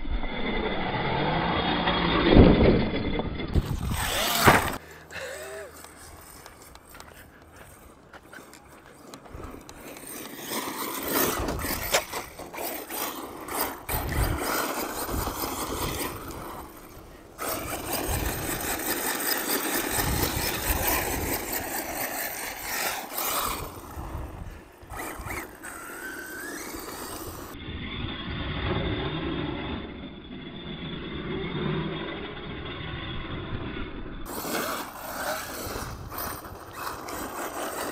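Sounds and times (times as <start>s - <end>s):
electric motor whine: 0.0s - 37.9s
tyres on gravel: 3.5s - 27.6s, 34.3s - 37.9s.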